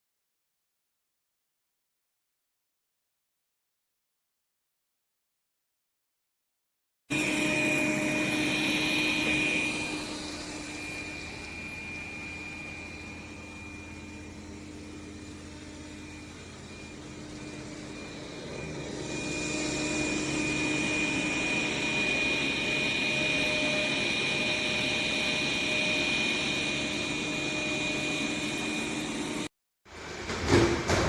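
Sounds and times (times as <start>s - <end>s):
robot vacuum whining: 7.1s - 29.5s.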